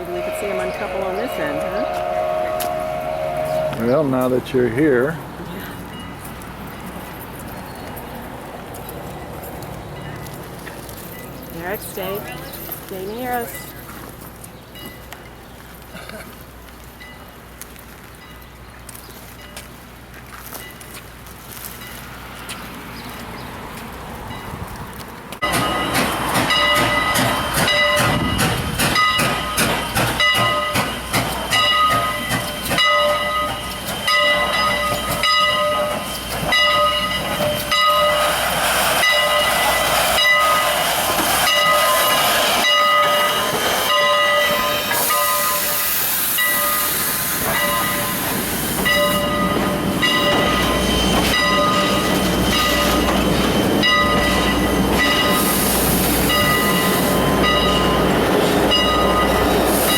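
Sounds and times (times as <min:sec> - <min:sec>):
locomotive bell ringing: 0:00.0 - 0:07.3, 0:09.3 - 0:15.4, 0:25.4 - 0:59.9
wheels clicking over rail joints: 0:05.7 - 0:45.6
steam hissing: 0:37.2 - 0:59.9.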